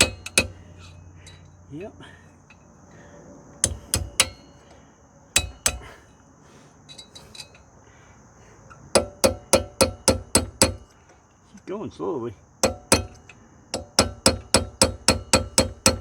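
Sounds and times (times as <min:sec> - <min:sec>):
hammer tapping on metal: 0:00.0 - 0:00.6, 0:03.6 - 0:04.6, 0:05.4 - 0:06.0, 0:09.0 - 0:10.9, 0:12.6 - 0:16.0.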